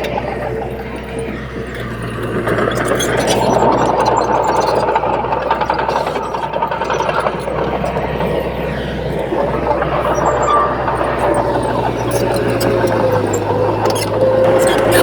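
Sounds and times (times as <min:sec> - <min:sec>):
bulldozer diesel engine clattering: 0:00.0 - 0:15.0
steady high squeal: 0:00.0 - 0:15.0
lower squeal sliding down: 0:06.4 - 0:15.0.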